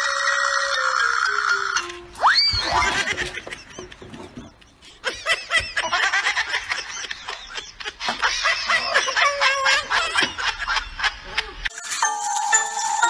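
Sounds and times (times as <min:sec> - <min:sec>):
high-pitched laughter: 0:02.5 - 0:11.7.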